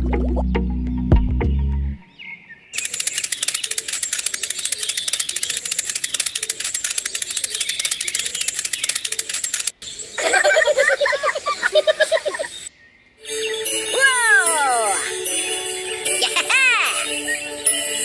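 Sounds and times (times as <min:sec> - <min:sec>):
music with deep bass: 0:00.0 - 0:02.0
rapid rattling clicks: 0:02.8 - 0:09.7.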